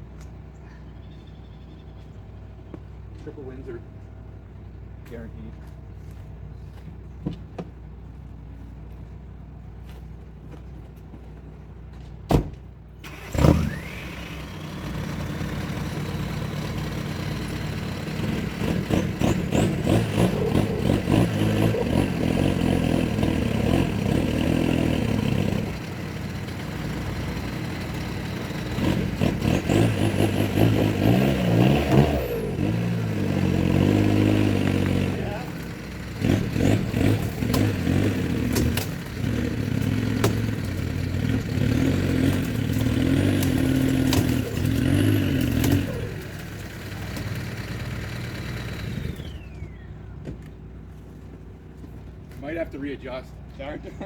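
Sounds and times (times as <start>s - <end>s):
truck engine starting and revving: 12.9s - 51.0s.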